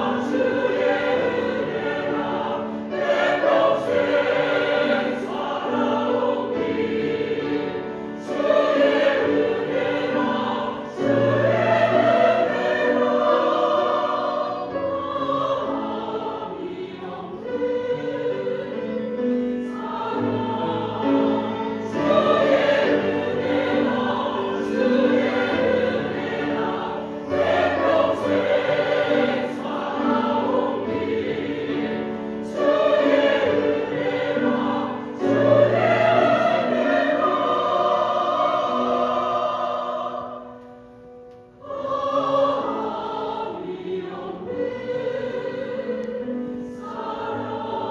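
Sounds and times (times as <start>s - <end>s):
choir singing: 0.0s - 47.9s.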